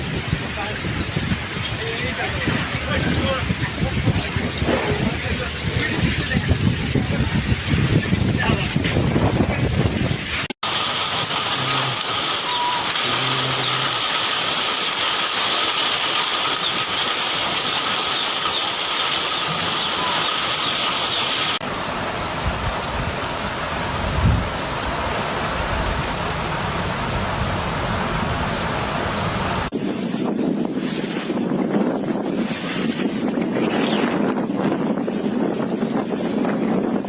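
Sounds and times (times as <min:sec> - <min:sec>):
wind buffeting microphone: 0:00.0 - 0:10.6, 0:21.6 - 0:37.0
heavy rain downpour: 0:00.0 - 0:29.8.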